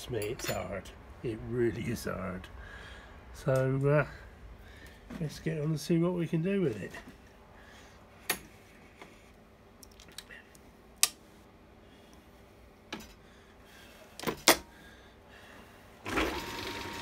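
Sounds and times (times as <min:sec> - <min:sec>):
lathe running with whine: 0:16.1 - 0:17.0.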